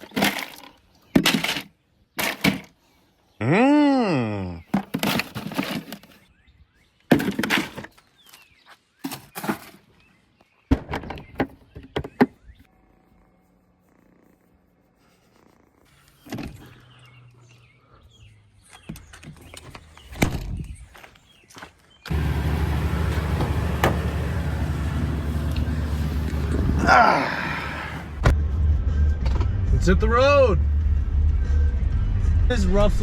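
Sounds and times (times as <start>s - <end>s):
truck door knocks and thumps: 22.1s - 26.8s.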